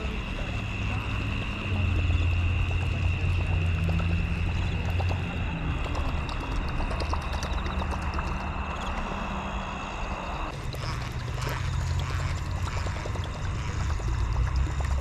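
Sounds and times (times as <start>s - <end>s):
low hum: 0.0s - 15.0s
high-pitched animal chorus: 4.4s - 14.2s.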